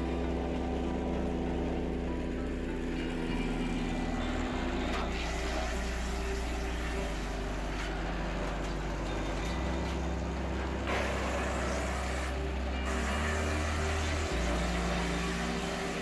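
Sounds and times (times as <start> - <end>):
heavy machine engine running: 0.0 - 16.0.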